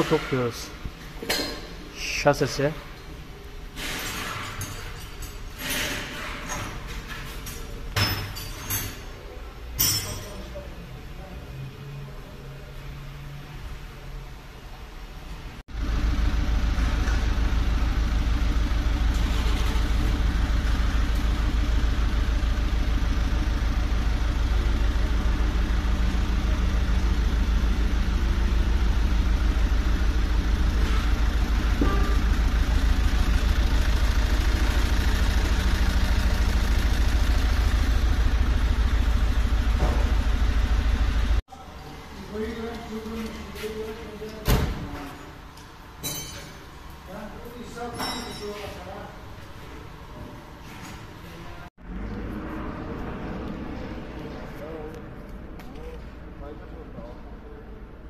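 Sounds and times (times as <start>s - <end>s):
engine idling: 15.7s - 41.4s.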